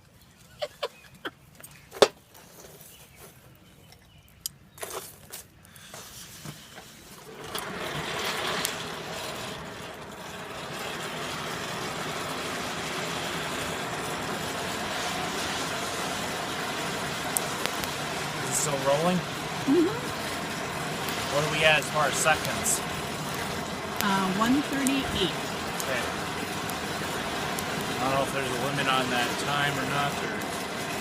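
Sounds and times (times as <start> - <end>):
forge rushing noise: 7.2 - 31.0.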